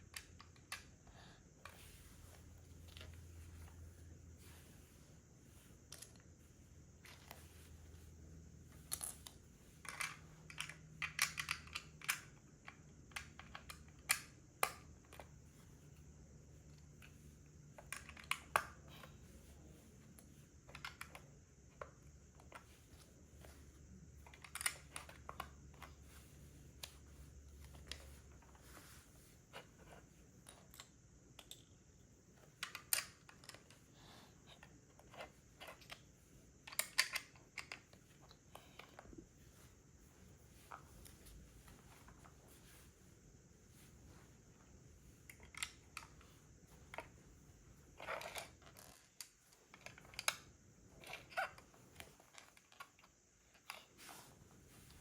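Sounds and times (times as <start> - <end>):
plastic bricks clicking: 36.6 - 37.8.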